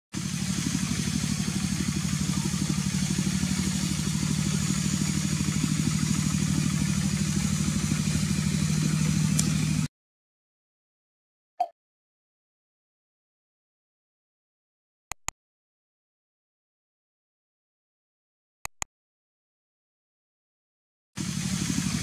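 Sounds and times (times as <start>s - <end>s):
engine idling: 0.1s - 9.9s, 21.2s - 22.0s.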